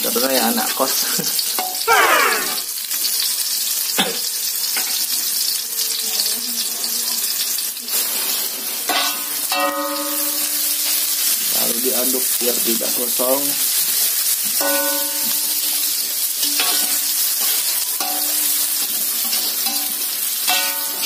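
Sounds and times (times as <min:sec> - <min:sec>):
food sizzling in oil: 0:00.0 - 0:21.0
brief held tone: 0:01.9 - 0:02.7
short falling whine: 0:01.9 - 0:02.7.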